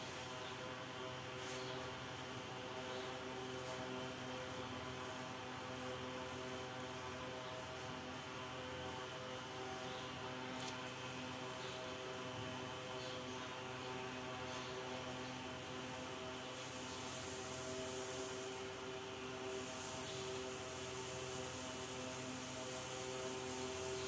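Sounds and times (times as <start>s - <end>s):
hiss: 16.2s - 24.0s.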